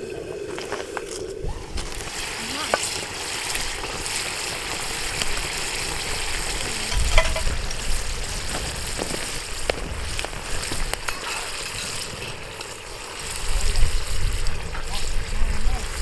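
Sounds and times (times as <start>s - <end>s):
food sizzling: 0.0s - 16.0s
low rumbles: 6.6s - 8.8s.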